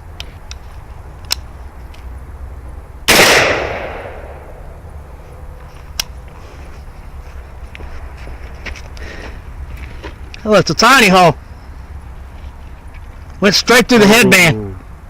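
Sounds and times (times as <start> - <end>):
rifle shot with echo: 3.1 - 4.6.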